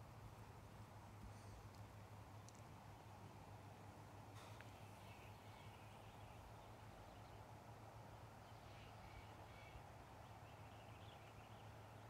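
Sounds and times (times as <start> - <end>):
low steady hum: 0.0 - 12.0
faint bird chirps: 4.4 - 11.8.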